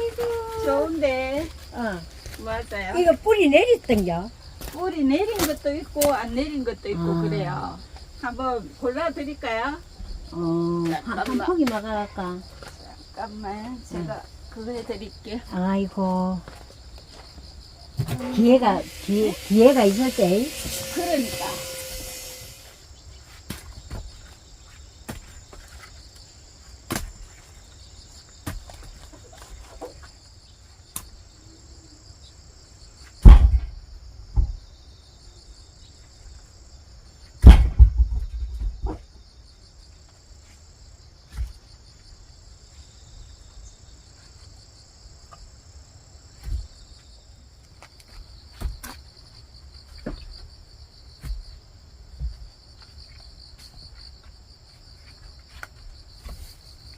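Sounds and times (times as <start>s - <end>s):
crickets chirring: 0.0s - 56.9s
deep thumps: 33.2s - 34.7s, 37.4s - 39.1s.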